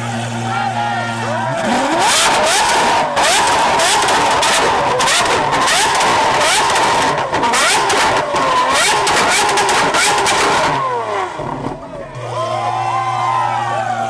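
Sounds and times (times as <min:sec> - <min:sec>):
sports car exhaust revving: 0:01.4 - 0:12.4
exhaust crackles and pops: 0:02.0 - 0:12.0.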